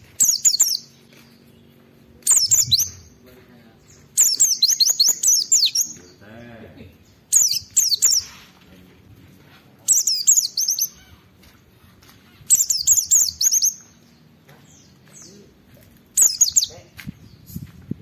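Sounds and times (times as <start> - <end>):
bird singing rapid high notes: 0.0 - 3.2, 3.8 - 6.2, 7.0 - 8.5, 9.8 - 11.2, 12.4 - 15.3, 16.2 - 17.6.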